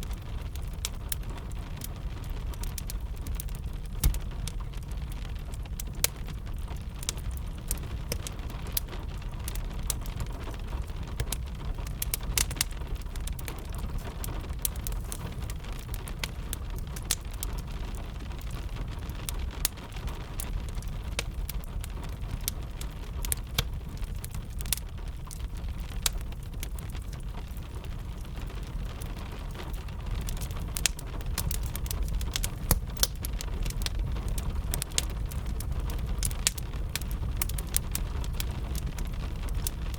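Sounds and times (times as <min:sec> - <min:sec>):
fire crackling and popping: 0:00.0 - 0:39.9
gentle rain hiss: 0:00.0 - 0:39.9.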